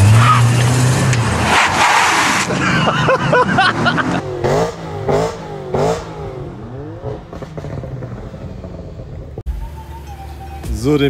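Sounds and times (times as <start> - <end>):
brake squeal sliding in pitch: 0.0 - 0.8, 9.5 - 11.0
car engine running: 2.4 - 11.0.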